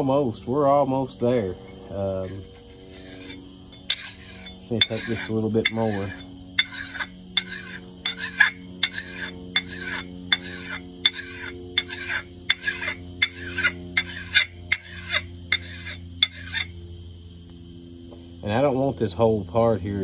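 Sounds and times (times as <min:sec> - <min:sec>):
file scraping steel: 0:01.6 - 0:16.8.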